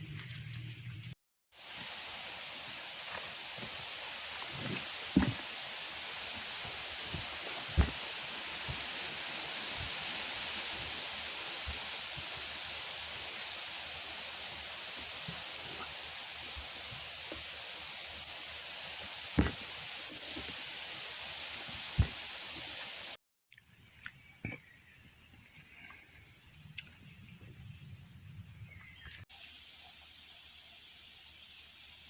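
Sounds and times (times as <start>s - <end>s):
high-pitched insect buzz: 0.0s - 1.2s, 23.5s - 32.0s.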